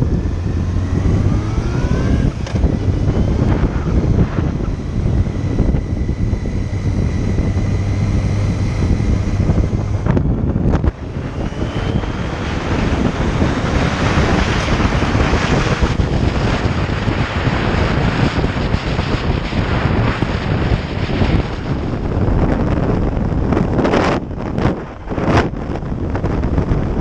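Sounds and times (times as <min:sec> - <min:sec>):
motorcycle engine running: 0:00.0 - 0:27.0
wind rush on microphone: 0:00.0 - 0:27.0.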